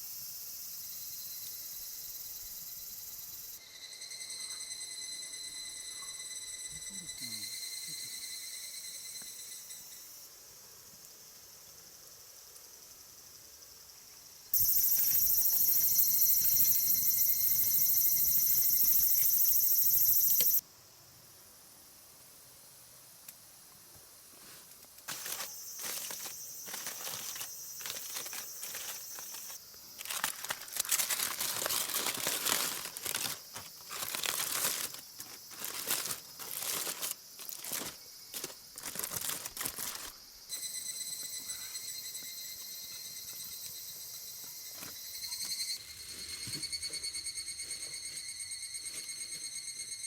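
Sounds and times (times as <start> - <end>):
pulsing high insect song: 0.0 - 20.7, 25.1 - 50.0
insects buzzing: 0.0 - 21.4, 25.0 - 50.0
wrapper crinkling and rustling: 25.1 - 40.2.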